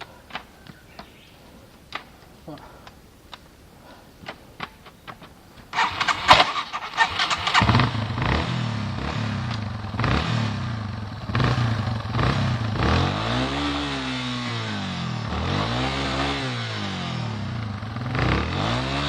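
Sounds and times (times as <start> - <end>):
motorcycle engine starting and running: 5.7 - 19.0.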